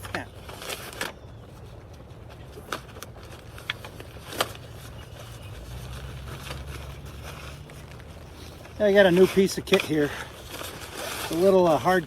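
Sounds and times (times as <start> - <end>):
low steady rumble: 0.0 - 9.6.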